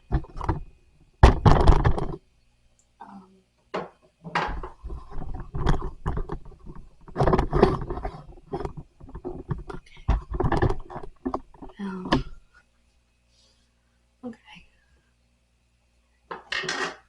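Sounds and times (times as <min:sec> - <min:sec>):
wooden panels knocking and scraping: 0:00.0 - 0:02.2, 0:03.8 - 0:12.4.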